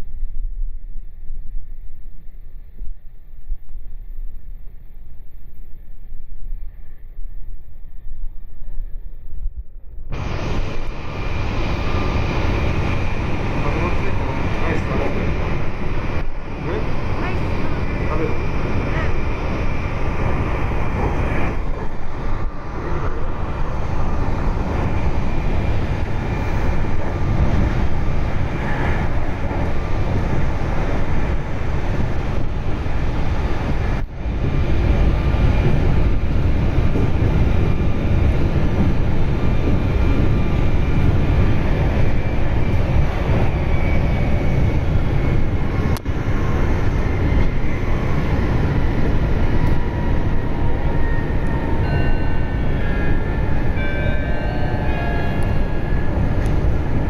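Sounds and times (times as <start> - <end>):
train wheels rumbling on rail: 4.6 - 57.0.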